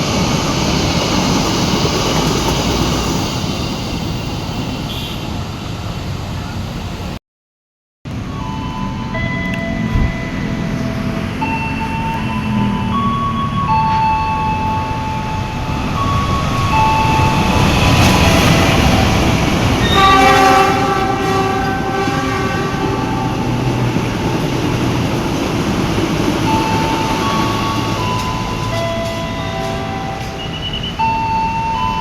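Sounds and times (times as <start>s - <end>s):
train rumbling past: 0.0s - 7.2s, 8.1s - 32.0s
locomotive horn: 4.8s - 5.4s, 17.3s - 24.2s.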